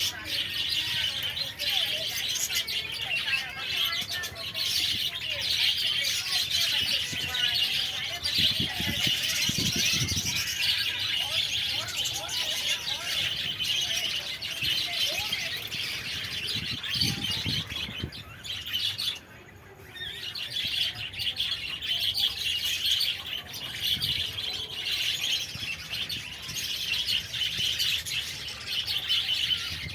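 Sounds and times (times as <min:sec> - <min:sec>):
budgerigars chattering and chirping: 0:00.0 - 0:29.9.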